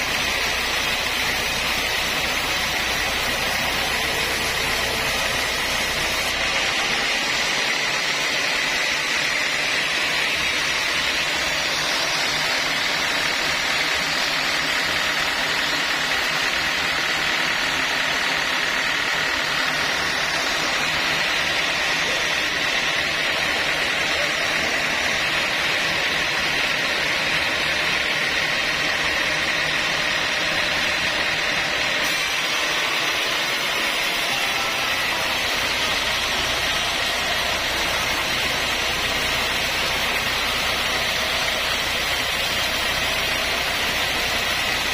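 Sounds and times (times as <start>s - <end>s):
sawmill saw running: 0.0s - 44.9s.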